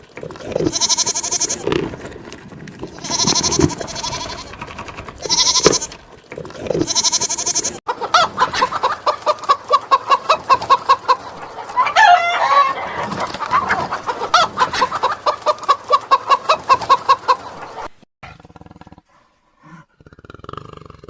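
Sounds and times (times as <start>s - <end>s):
chickens clucking: 0.0s - 18.0s
chicken squawk: 3.0s - 6.0s, 6.8s - 17.9s.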